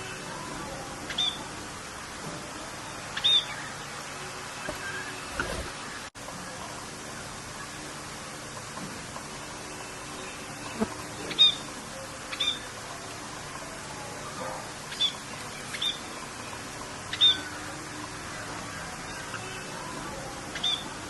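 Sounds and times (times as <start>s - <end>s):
bird chirping: 0.0s - 1.5s, 2.8s - 6.1s, 9.7s - 12.7s, 14.8s - 17.8s, 18.9s - 21.0s
steady rain: 0.0s - 21.0s.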